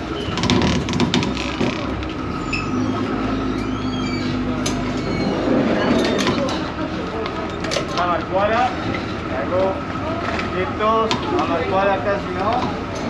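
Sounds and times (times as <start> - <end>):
boat engine droning: 0.0 - 13.0
short high squeaks: 2.3 - 6.5.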